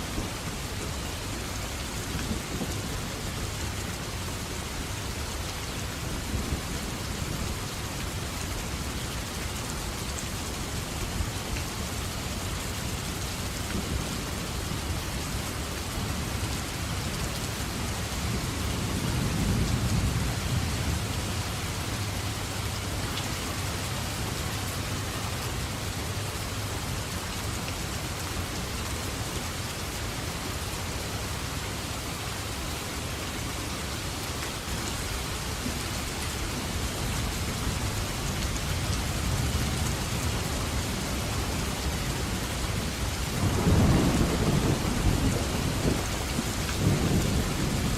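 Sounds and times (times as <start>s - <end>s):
heavy rain on foliage: 0.0s - 47.9s
distant thunder rumbling: 42.9s - 47.9s.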